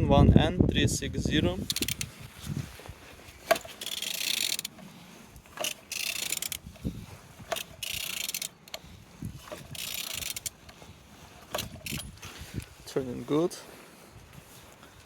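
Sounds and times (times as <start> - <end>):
engine turned over by hand: 1.6 - 2.2, 3.4 - 10.7, 11.4 - 12.3.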